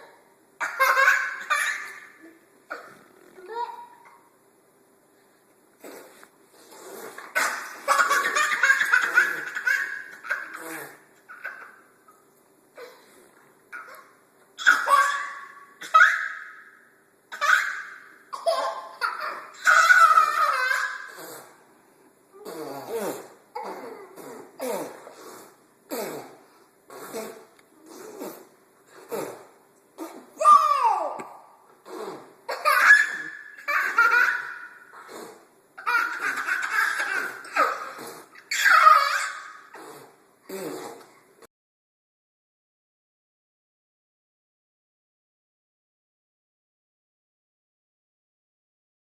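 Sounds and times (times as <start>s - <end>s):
boys making pfft mouth noises: 5.8s - 8.4s, 22.3s - 32.6s, 34.9s - 35.6s, 37.0s - 39.0s, 39.6s - 41.2s
boys giggling: 7.4s - 11.7s.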